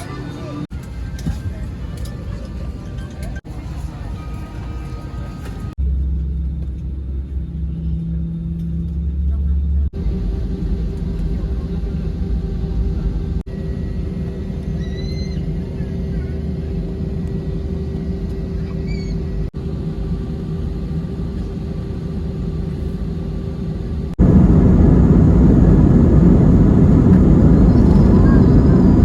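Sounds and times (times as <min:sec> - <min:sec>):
airplane cabin rumble: 0:00.0 - 0:29.0
louder heavier rumble: 0:05.8 - 0:14.4, 0:23.9 - 0:29.0.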